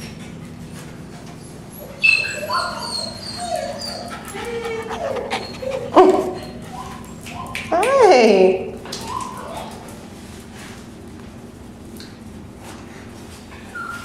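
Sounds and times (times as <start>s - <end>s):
dog whimpering and yipping: 1.4s - 7.6s, 13.6s - 14.0s.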